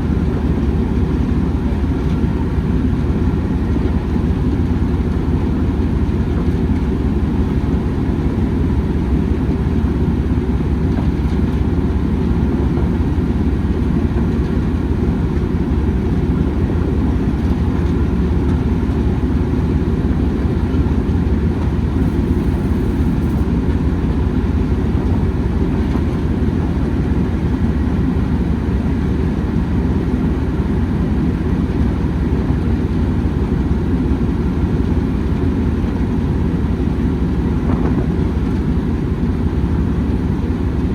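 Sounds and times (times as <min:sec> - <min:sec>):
train rumbling: 0:00.0 - 0:30.4.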